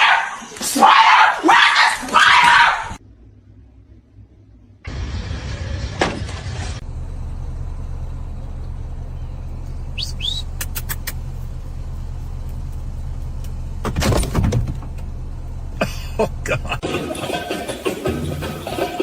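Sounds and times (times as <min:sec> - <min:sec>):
vehicle rumbling: 0:02.0 - 0:19.0
sharp clicks: 0:10.0 - 0:11.3.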